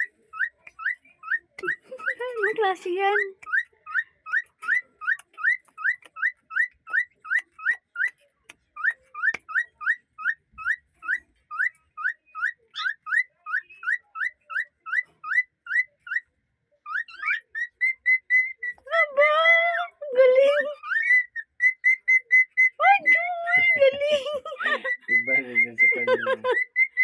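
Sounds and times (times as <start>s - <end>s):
cockatiel whistling: 16.9s - 18.9s, 20.8s - 22.8s, 24.6s - 27.0s.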